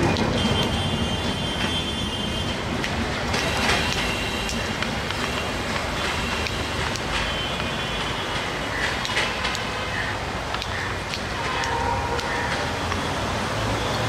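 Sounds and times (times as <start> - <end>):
train rumbling on track: 0.0 - 14.0
wheels clicking: 2.7 - 13.1.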